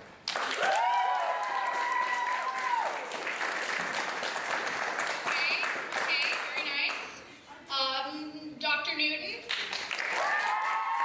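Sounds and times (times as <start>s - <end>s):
crowd applauding and cheering: 0.0s - 6.9s, 9.5s - 11.0s
long held whoop: 0.6s - 3.0s, 10.2s - 11.0s.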